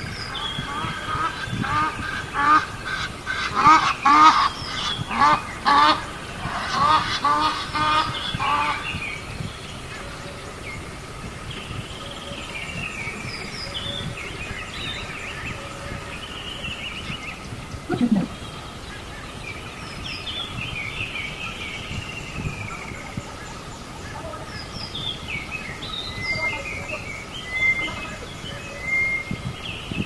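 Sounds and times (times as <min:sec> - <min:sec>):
bird calls and chirps: 0:00.0 - 0:30.0
geese honking: 0:00.4 - 0:08.8.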